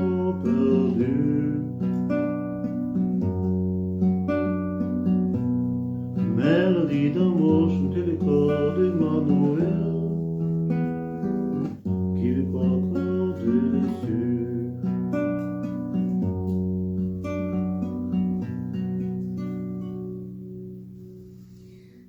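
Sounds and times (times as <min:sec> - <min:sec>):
wordless vocal melody: 0:00.0 - 0:02.4, 0:06.2 - 0:15.4
acoustic guitar strumming: 0:00.0 - 0:22.0.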